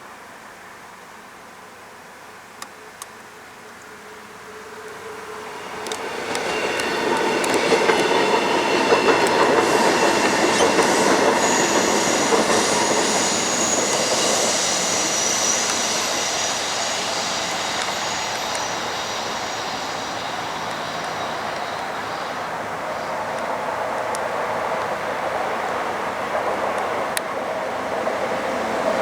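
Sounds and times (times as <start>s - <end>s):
train on rails: 3.9s - 29.0s
steel wheels squealing: 5.3s - 23.5s.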